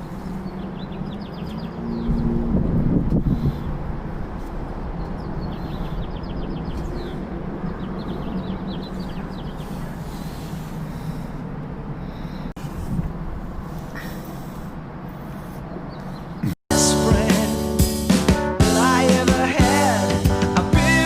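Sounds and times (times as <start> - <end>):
small birds chirping: 0.0 - 2.4, 3.1 - 12.6, 13.7 - 16.6.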